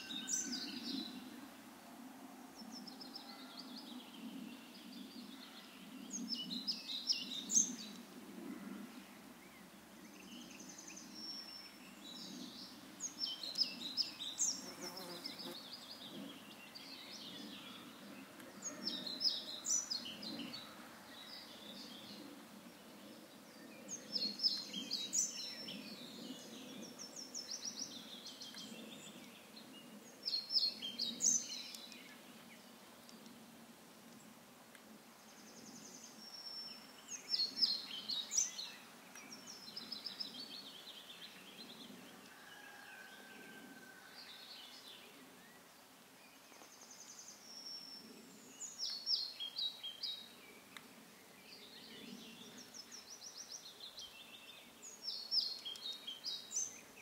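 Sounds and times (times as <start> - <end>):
songbird singing: 0.0 - 1.6, 2.4 - 8.1, 8.9 - 33.5, 35.2 - 57.0.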